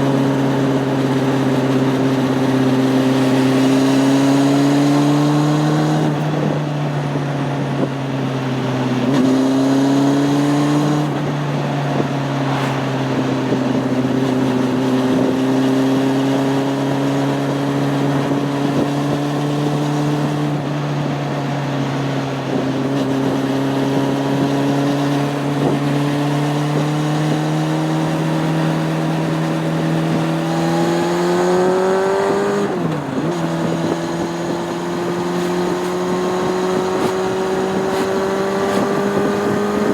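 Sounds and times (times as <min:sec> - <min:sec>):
motorcycle engine running: 0:00.0 - 0:39.9
wind rushing: 0:09.2 - 0:16.0.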